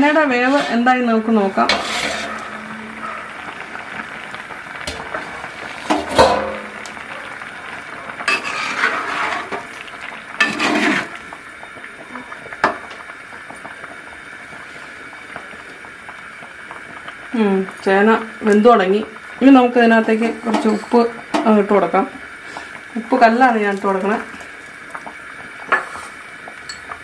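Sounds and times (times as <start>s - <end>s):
pot lid and spoon clattering: 5.9s - 6.9s.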